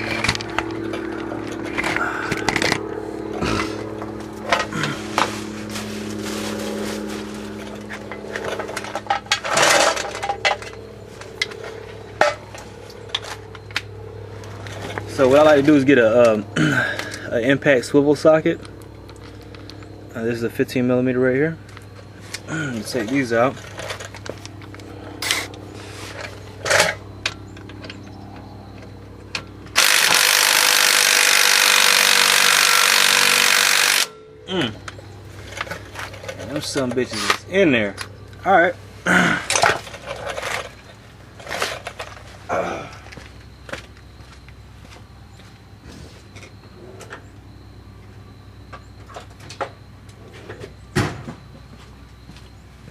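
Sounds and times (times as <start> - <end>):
steady background hum: 0.0 - 52.9
impact wrench running: 29.7 - 34.2.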